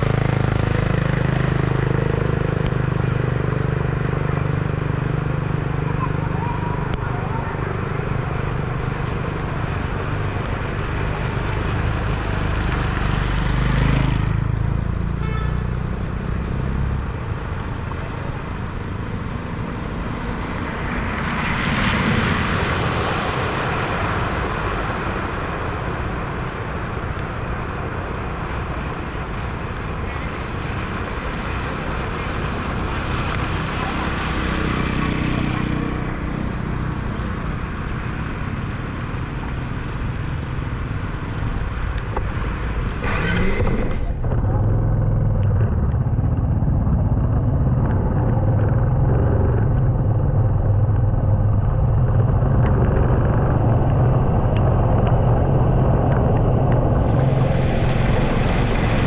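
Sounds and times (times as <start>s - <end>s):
low engine rumble: 0.0s - 15.0s, 15.8s - 59.0s
vehicles rushing through water: 0.0s - 59.0s.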